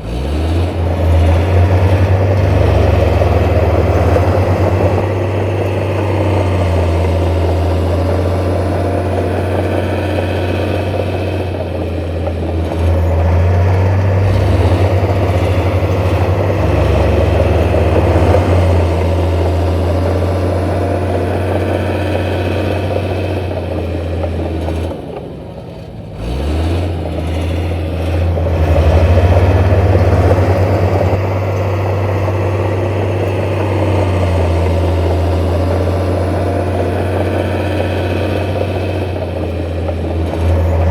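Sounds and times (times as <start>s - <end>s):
diesel engine under load: 0.0s - 40.9s.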